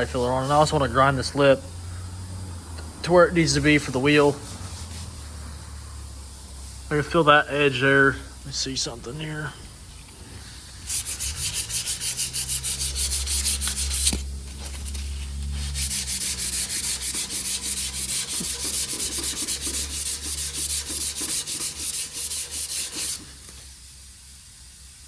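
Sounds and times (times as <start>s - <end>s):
sandpaper sanding metal: 10.8s - 23.5s.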